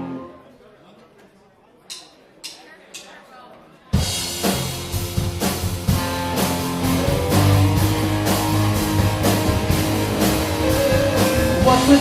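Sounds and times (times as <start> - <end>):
steady drum beat: 4.0 - 12.0
electric guitar: 4.4 - 12.0.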